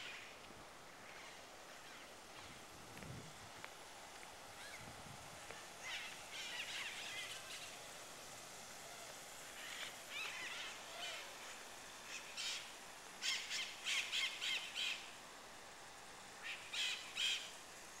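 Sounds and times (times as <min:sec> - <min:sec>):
birds calling: 0:09.5 - 0:15.2.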